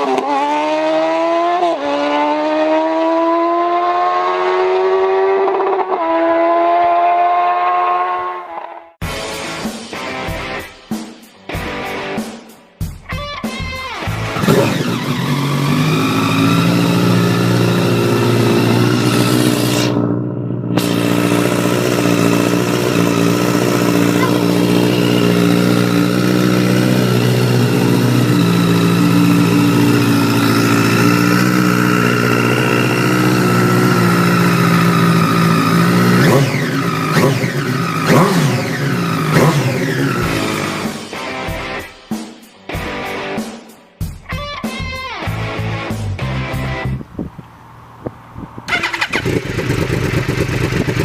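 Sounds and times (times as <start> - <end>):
motorcycle engine at high revs: 0.0 - 8.4, 14.4 - 41.0, 48.7 - 51.0
high whine: 16.0 - 37.1.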